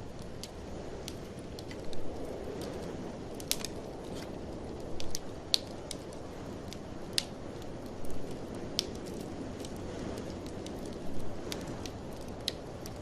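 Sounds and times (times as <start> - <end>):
blizzard wind rushing: 0.0 - 13.0
wood fire crackling: 0.0 - 13.0.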